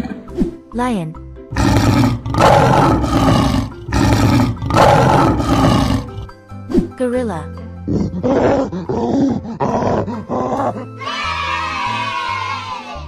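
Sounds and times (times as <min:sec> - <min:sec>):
lion roaring: 0:01.5 - 0:06.4, 0:07.9 - 0:10.8.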